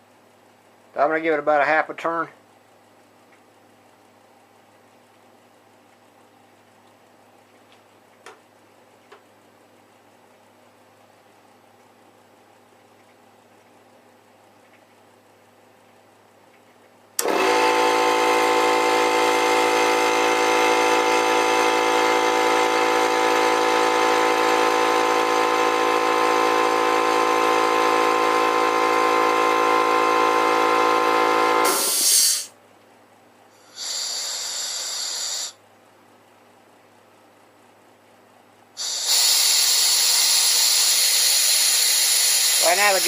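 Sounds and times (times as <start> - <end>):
air compressor running: 17.2 - 32.6, 33.5 - 35.6, 38.8 - 43.0
air hissing: 31.5 - 32.6, 33.6 - 35.6, 38.8 - 43.0.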